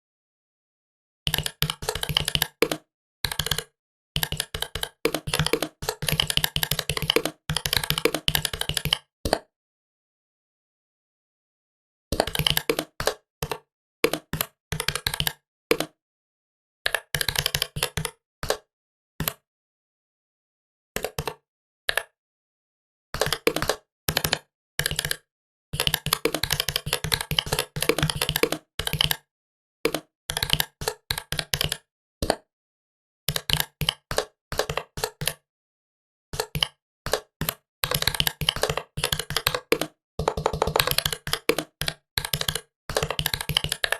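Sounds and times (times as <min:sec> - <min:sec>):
typing on laptop keyboard: 0:01.3 - 0:09.1, 0:12.1 - 0:16.0, 0:16.9 - 0:19.4, 0:23.2 - 0:25.2, 0:25.8 - 0:29.3, 0:29.9 - 0:32.4, 0:33.3 - 0:35.4, 0:36.4 - 0:43.9.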